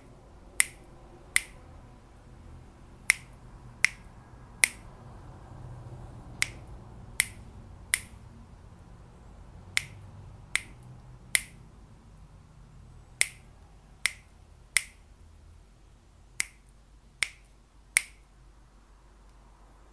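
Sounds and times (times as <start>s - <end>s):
finger snaps: 0.6s - 1.6s, 3.1s - 4.9s, 6.4s - 8.2s, 9.8s - 11.6s, 13.2s - 15.1s, 16.4s - 18.3s.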